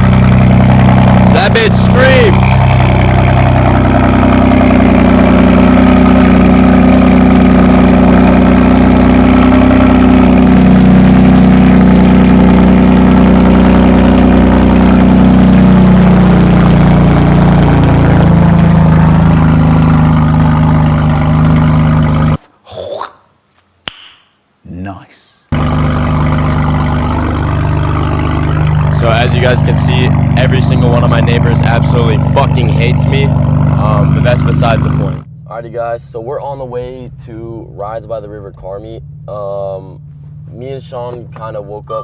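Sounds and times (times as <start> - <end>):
car engine idling loud: 0.0 - 22.4, 25.5 - 42.0.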